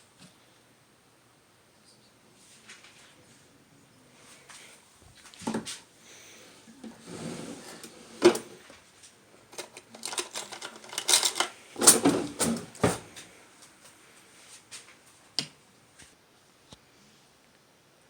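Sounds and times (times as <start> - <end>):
dishes and utensils clattering: 9.5 - 13.0.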